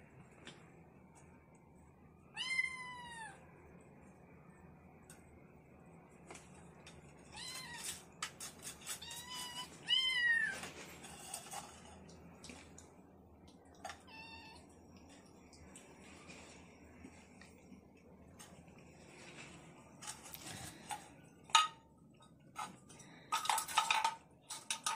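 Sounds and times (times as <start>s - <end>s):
cat meowing: 2.3s - 3.4s, 9.0s - 10.6s.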